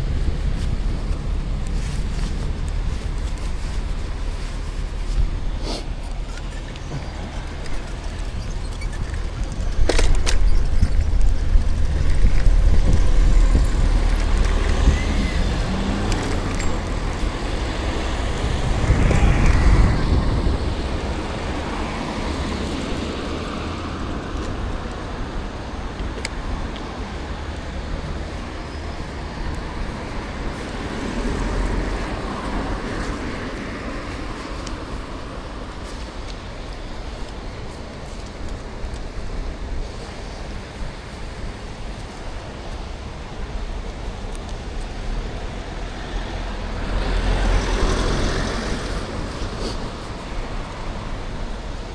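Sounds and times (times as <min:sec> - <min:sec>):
low traffic rumble: 0:00.0 - 0:51.9
cars driving past: 0:44.5 - 0:51.4.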